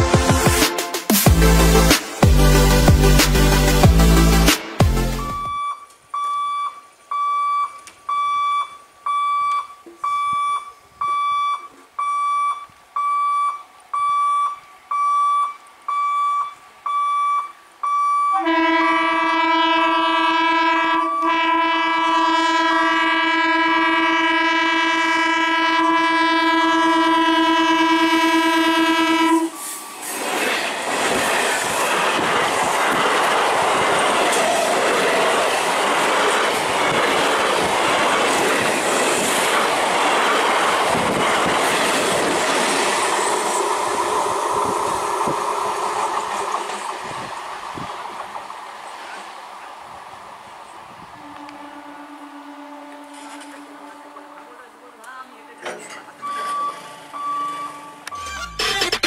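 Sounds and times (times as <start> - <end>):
level crossing warning beeper: 5.2 - 19.1, 20.4 - 21.9, 51.3 - 59.0
train horn long blast: 18.3 - 29.7, 51.1 - 55.9
train rushing past: 27.2 - 58.7.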